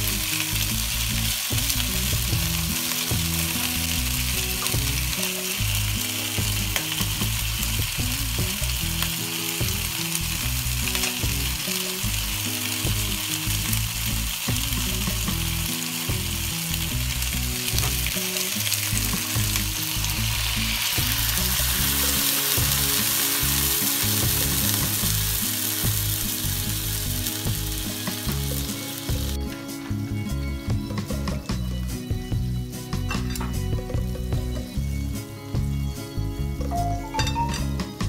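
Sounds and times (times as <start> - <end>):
liquid pouring and boiling: 0.0 - 29.5
chicken wings sizzling in a wok: 0.0 - 38.0
soft background music: 0.0 - 38.0.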